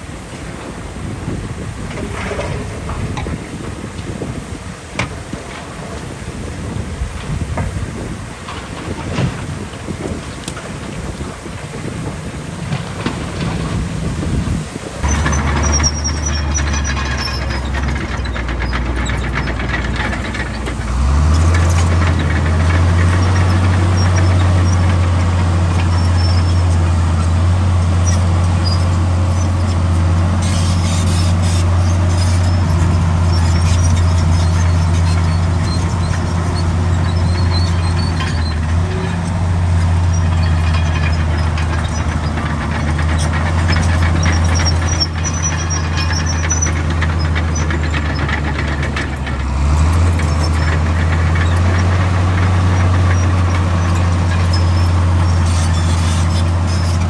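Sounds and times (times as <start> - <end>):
heavy diesel engine under load: 0.0 - 57.0
high metallic squeals: 15.0 - 57.0.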